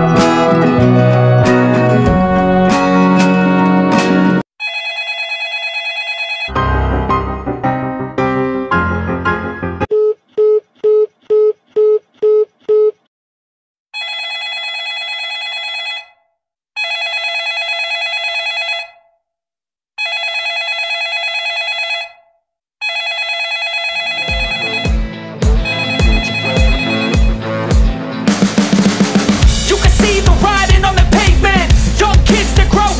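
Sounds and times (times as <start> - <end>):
telephone ringing: 4.6 - 6.6, 14.0 - 19.1, 20.0 - 27.4
telephone busy tone beeps: 23.8 - 25.0, 25.6 - 27.4
music with drum beat: 24.3 - 32.9.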